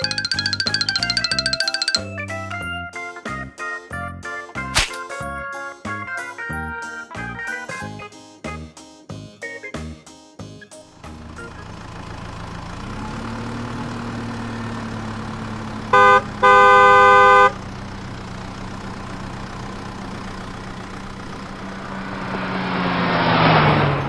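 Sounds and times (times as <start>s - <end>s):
cartoon engine humming: 0.0s - 2.5s, 11.0s - 24.0s
horn honking: 15.0s - 22.8s
rushing sound: 21.6s - 24.0s.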